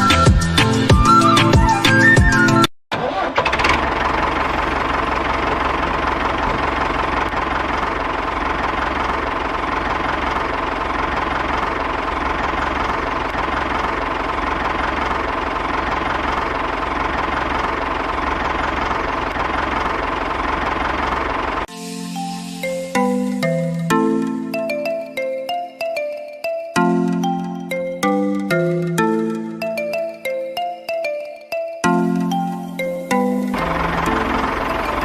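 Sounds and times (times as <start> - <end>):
small model tractor engine running: 3.0 - 21.7, 33.5 - 35.0.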